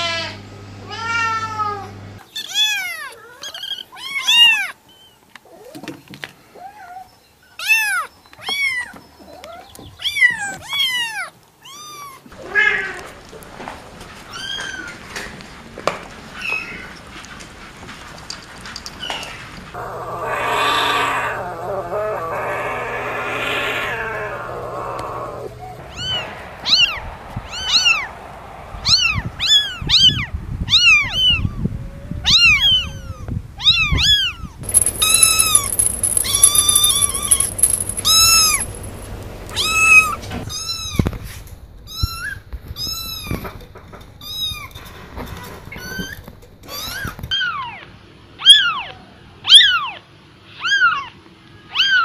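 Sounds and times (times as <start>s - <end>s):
kittens mewing: 19.8s - 26.2s.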